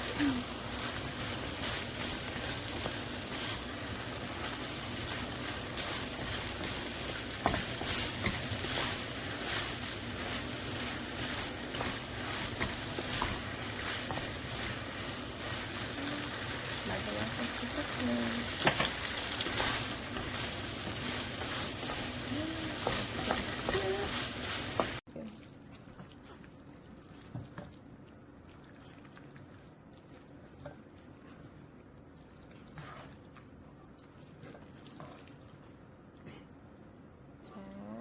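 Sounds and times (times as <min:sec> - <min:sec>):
food sizzling in a frying pan: 0:00.0 - 0:25.0.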